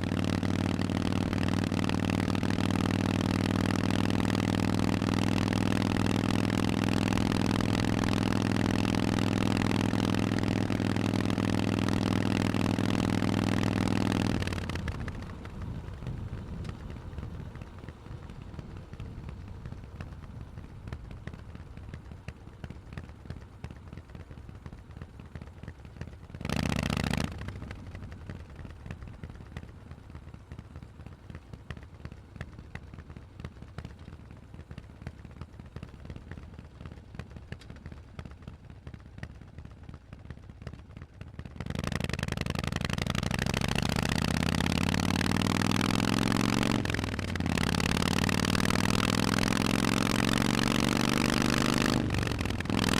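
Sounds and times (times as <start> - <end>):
motorcycle accelerating away: 0.0 - 20.6, 26.4 - 28.4, 41.6 - 52.9
motorcycle engine idling: 0.0 - 52.9.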